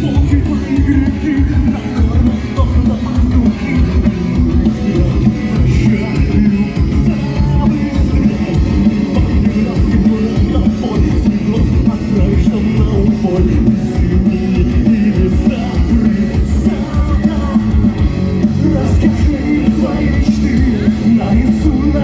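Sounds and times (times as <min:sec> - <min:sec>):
live rock band playing: 0:00.0 - 0:22.0
steady drum beat: 0:00.0 - 0:22.0.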